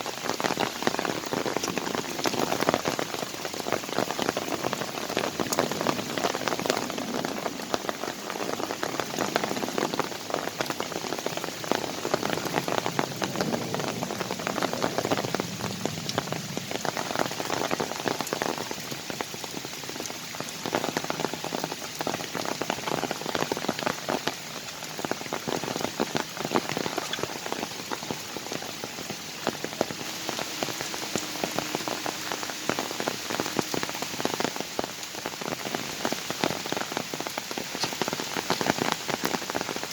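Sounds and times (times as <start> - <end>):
rain pattering in a forest: 0.0 - 39.9.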